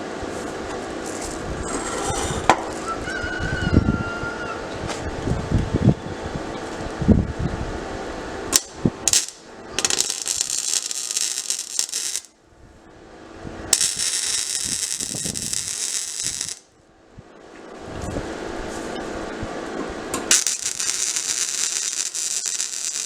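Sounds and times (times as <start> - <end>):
welding arc crackling: 8.5 - 12.4, 13.7 - 16.7, 20.2 - 23.0.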